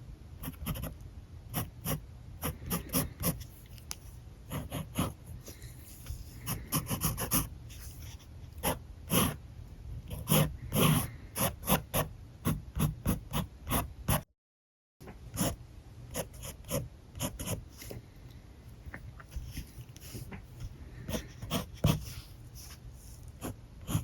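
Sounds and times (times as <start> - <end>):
marker scratching on paper: 4.5 - 9.4, 21.1 - 24.0.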